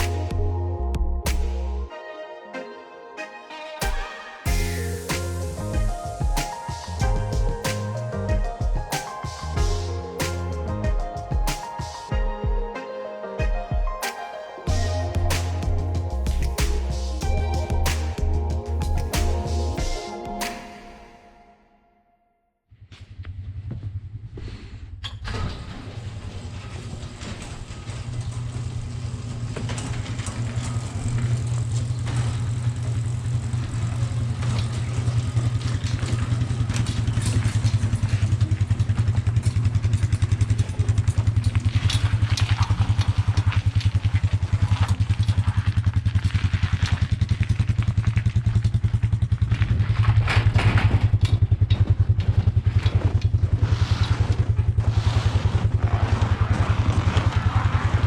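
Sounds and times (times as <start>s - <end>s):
vehicle engine running: 30.6s - 58.0s.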